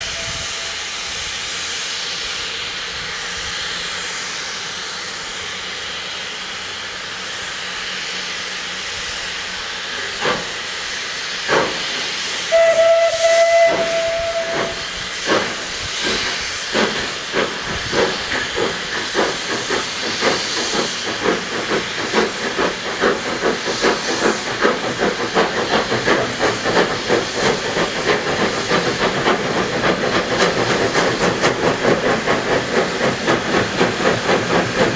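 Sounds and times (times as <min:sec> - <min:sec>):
locomotive whistle blast: 0:00.0 - 0:01.2, 0:12.4 - 0:14.9
steam hissing: 0:00.0 - 0:34.9
locomotive exhaust beats: 0:11.5 - 0:34.9.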